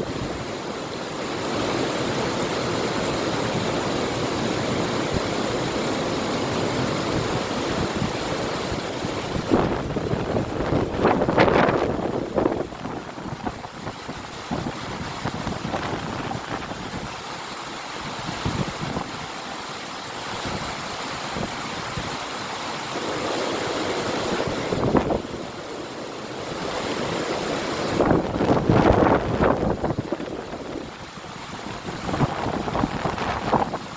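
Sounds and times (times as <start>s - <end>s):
river water rushing: 0.0s - 33.9s
wind buffeting microphone: 6.6s - 17.2s, 24.0s - 25.6s, 26.5s - 33.9s.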